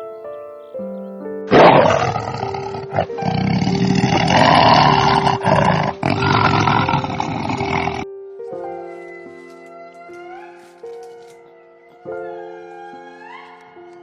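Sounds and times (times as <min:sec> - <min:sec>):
soft music: 0:00.0 - 0:14.0
large animal roaring: 0:01.5 - 0:08.0.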